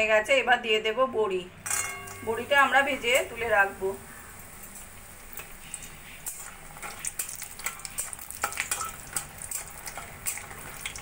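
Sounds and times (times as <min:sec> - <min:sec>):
dumplings frying in hot oil: 0:02.2 - 0:11.0.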